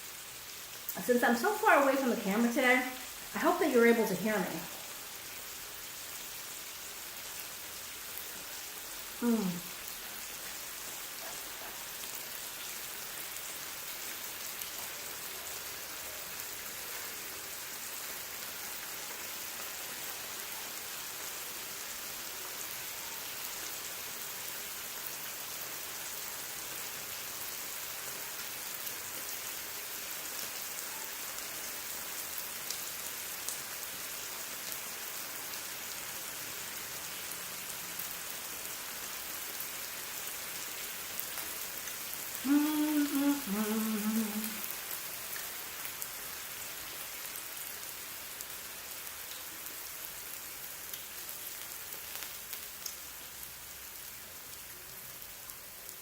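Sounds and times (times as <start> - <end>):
meat sizzling on a grill: 0.0 - 56.0.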